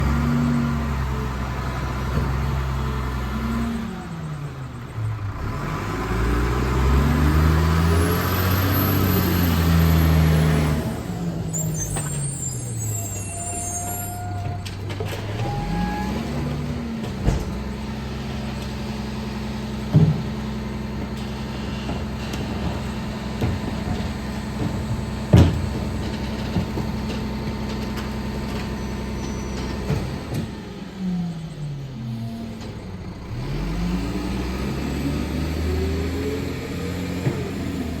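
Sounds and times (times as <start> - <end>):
garbage truck engine revving: 0.0 - 38.0
sharp bangs of trash loading: 19.5 - 30.5.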